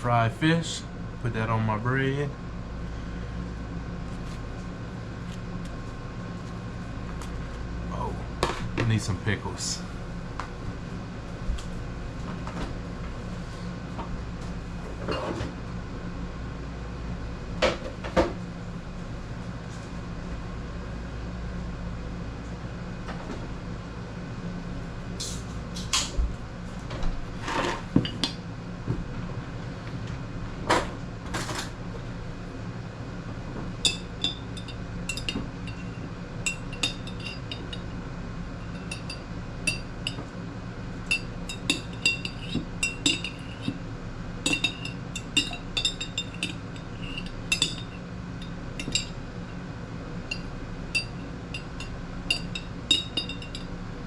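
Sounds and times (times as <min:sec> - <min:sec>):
steady low hum: 0:00.0 - 0:54.0
metal utensil clinking on dishes: 0:41.1 - 0:43.7, 0:44.5 - 0:47.9, 0:51.0 - 0:53.7.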